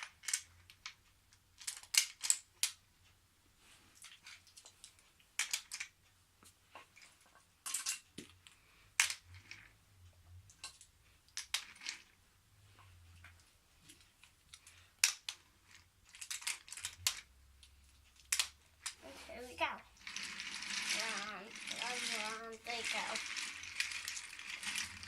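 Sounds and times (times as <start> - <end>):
wooden toy train clicking: 1.6 - 2.8, 4.0 - 5.9, 10.5 - 12.2, 13.2 - 17.3, 18.2 - 25.0.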